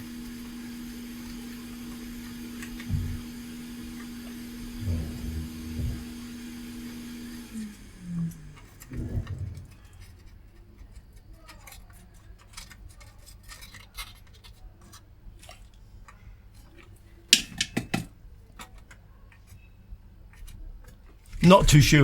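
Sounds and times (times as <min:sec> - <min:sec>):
low bump: 0:04.8 - 0:06.1, 0:08.9 - 0:10.0.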